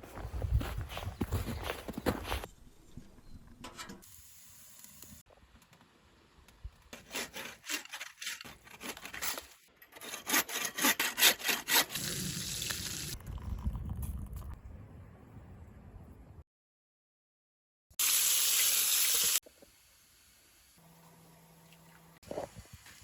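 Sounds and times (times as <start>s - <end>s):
hand saw cutting wood: 7.0s - 12.2s.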